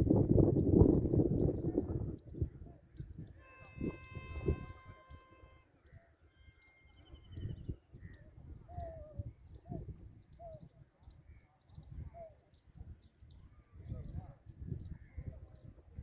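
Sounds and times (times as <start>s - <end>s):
bird trilling: 3.4s - 7.6s.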